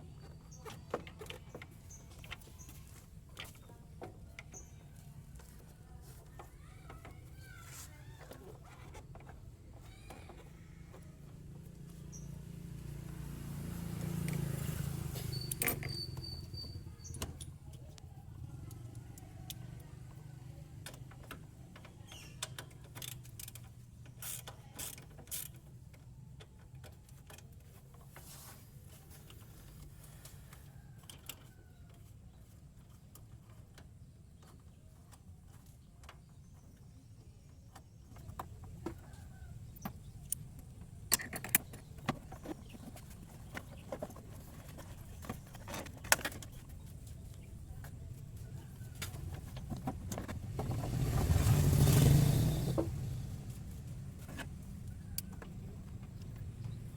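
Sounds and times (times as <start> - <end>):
hand tools clicking and creaking: 14.0 - 20.2, 20.8 - 36.9, 37.7 - 56.9.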